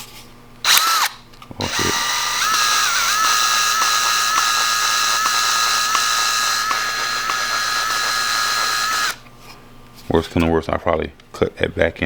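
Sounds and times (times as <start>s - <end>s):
power drill whining: 0.7s - 9.2s.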